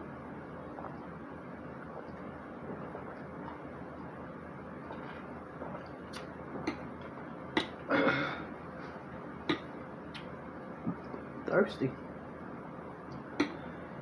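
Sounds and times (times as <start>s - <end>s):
wet smacking while eating: 4.8s - 7.8s, 9.5s - 11.2s.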